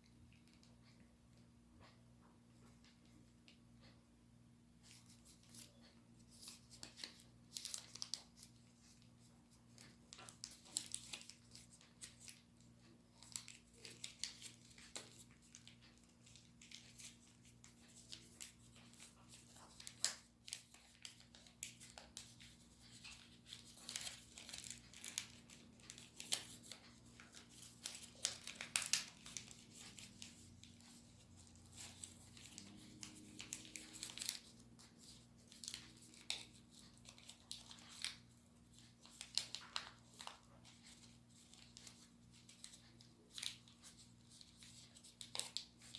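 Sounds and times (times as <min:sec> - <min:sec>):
paper crinkling and rustling: 0:04.8 - 0:45.9.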